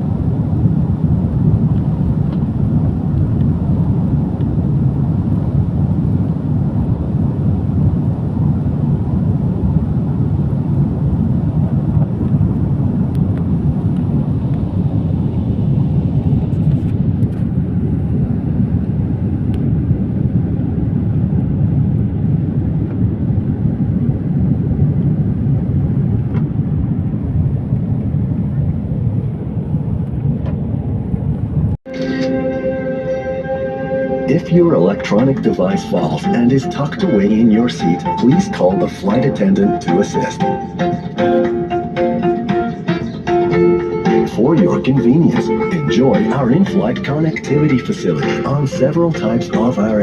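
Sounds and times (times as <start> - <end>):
jet airliner cabin rumble: 0.0 - 50.0.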